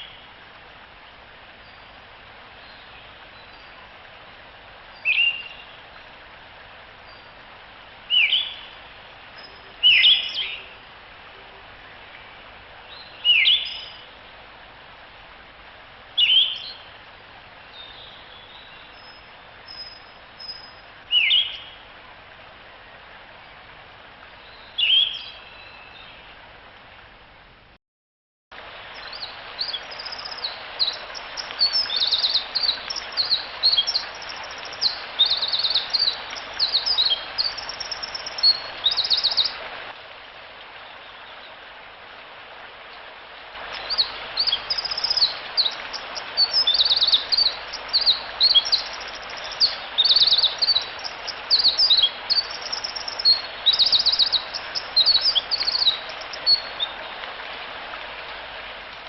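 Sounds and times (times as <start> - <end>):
steady background hiss: 0.0 - 27.8, 28.6 - 59.0
songbird singing trills: 9.4 - 10.8, 29.0 - 39.6, 43.7 - 57.0.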